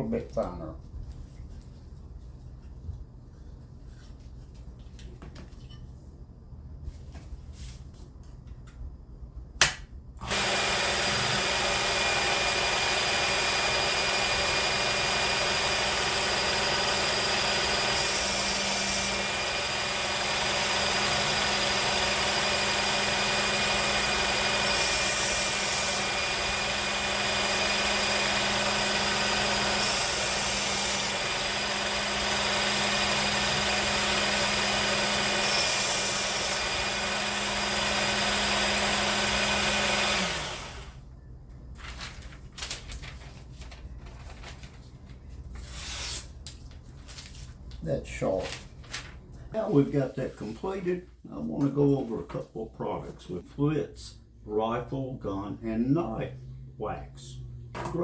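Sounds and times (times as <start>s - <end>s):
electric belt sharpener running: 10.2s - 41.0s.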